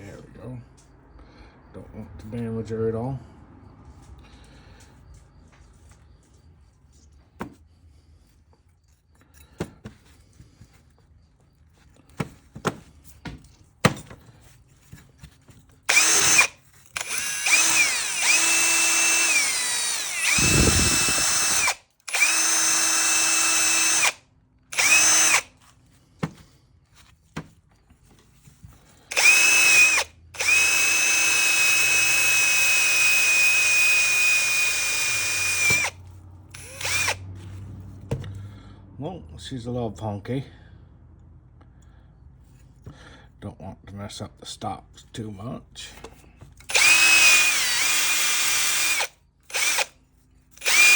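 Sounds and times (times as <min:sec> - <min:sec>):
power tool whining: 0:15.2 - 0:25.6, 0:29.0 - 0:38.4, 0:46.6 - 0:50.9.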